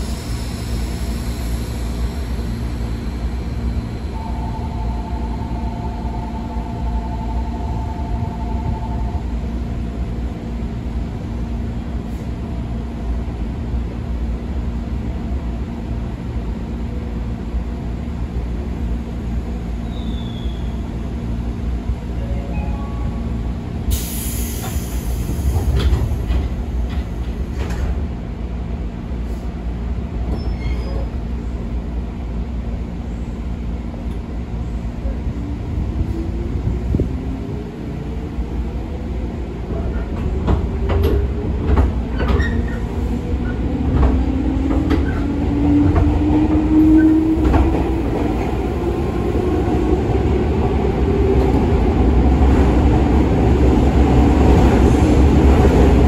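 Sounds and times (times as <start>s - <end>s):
train doors closing: 22.1s - 28.3s, 29.2s - 31.3s, 36.0s - 56.0s.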